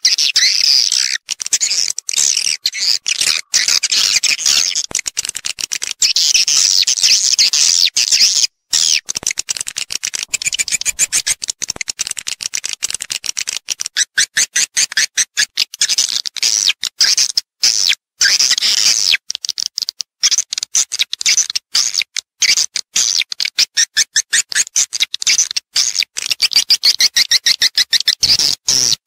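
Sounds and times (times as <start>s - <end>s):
swiftlet twittering chirps: 1.0s - 5.1s, 10.3s - 11.9s.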